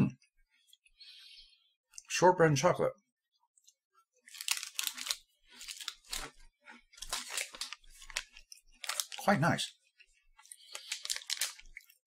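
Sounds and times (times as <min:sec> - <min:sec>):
cookie crunching: 0:03.6 - 0:09.4, 0:10.0 - 0:12.0.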